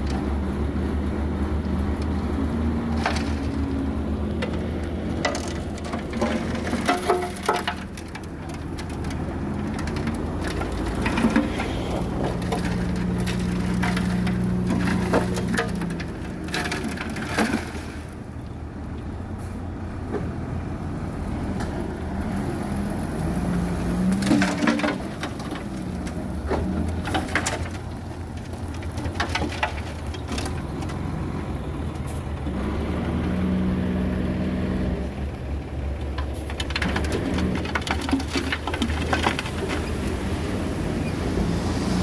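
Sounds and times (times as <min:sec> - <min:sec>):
heavy diesel machinery engine: 0:00.0 - 0:42.0
metallic clanks and knocks: 0:02.9 - 0:18.2, 0:24.0 - 0:31.1, 0:36.0 - 0:40.2.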